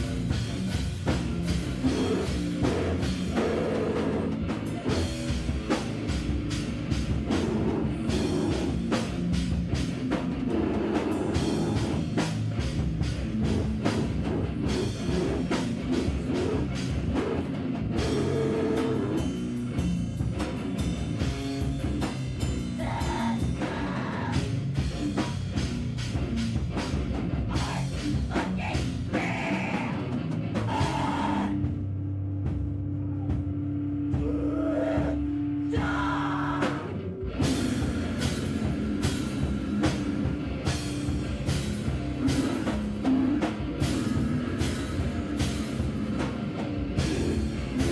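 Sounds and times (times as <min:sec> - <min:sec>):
distorted electric guitar: 0:00.0 - 0:47.9.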